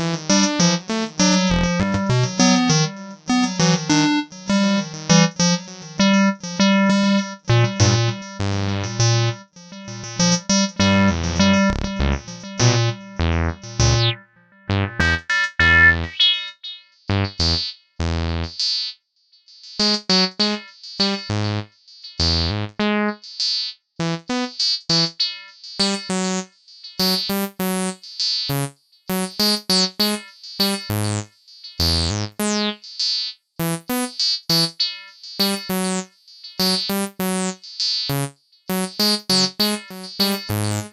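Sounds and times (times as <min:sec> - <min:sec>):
staccato bass synth sequence: 0:01.4 - 0:02.6, 0:08.6 - 0:17.6.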